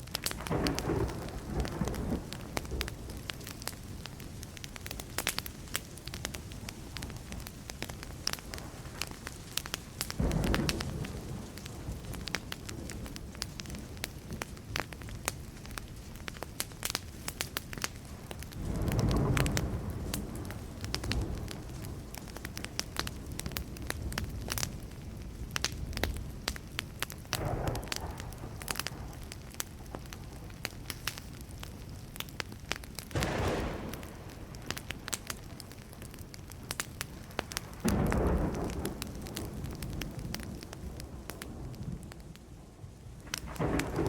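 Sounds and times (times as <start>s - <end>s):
campfire crackling and popping: 0.0s - 44.0s
distant thunder rumbling: 0.3s - 4.2s, 10.1s - 14.9s, 18.1s - 25.0s, 27.3s - 30.8s, 33.0s - 42.2s, 43.2s - 44.0s.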